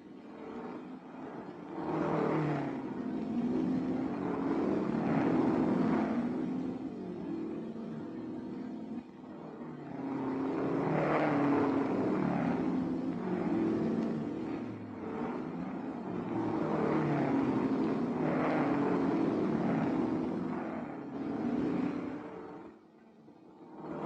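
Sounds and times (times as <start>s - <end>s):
racing cars passing: 0.0s - 24.0s.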